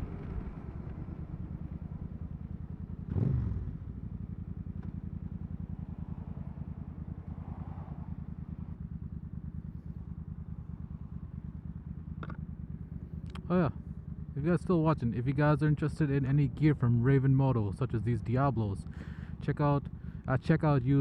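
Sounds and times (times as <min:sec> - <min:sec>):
motorcycle engine running: 0:00.0 - 0:20.6
vehicle passing by: 0:06.1 - 0:08.6.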